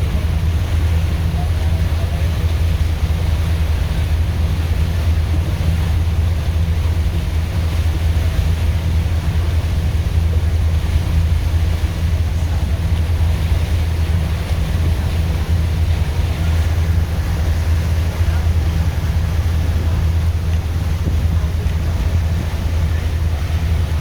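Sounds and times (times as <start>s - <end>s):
boat engine humming: 0.0s - 24.0s
rushing water: 0.0s - 24.0s
wind noise: 14.1s - 24.0s.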